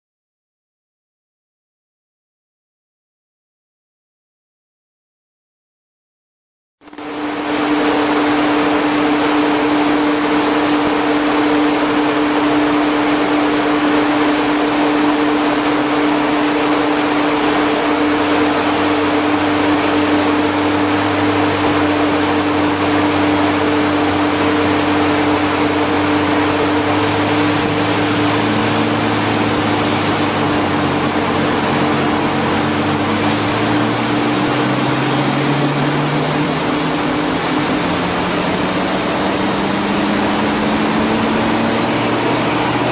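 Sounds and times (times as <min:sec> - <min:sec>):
large fan blowing air: 0:06.9 - 0:42.9
car engine idling: 0:14.7 - 0:42.9.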